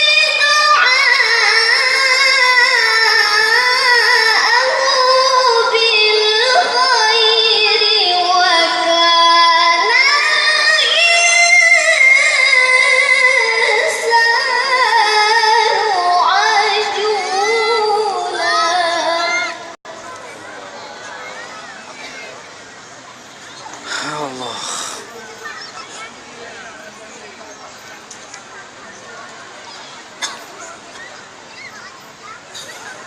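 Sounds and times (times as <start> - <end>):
child reciting melodically: 0.0 - 19.8.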